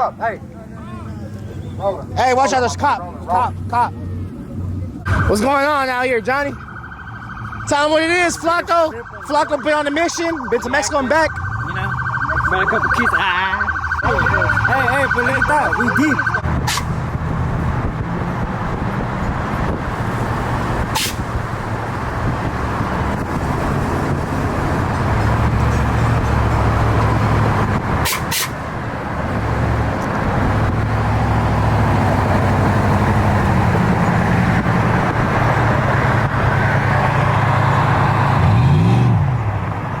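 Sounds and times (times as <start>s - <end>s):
street traffic rumble: 0.0s - 40.0s.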